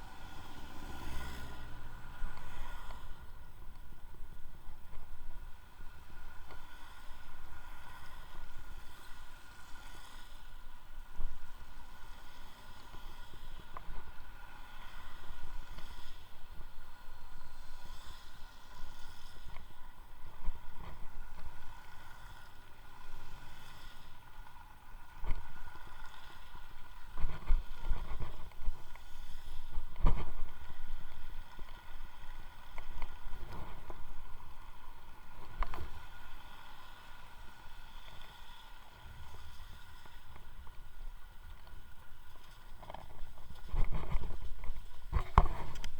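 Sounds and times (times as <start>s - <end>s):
electric motor whine: 0.0s - 3.4s
wind rumbling on microphone: 0.0s - 9.6s, 24.0s - 45.9s.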